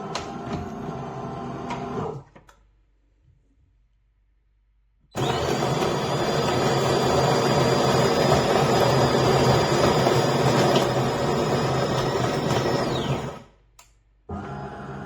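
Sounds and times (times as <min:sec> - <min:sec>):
coffee machine whirring: 0:05.2 - 0:13.6.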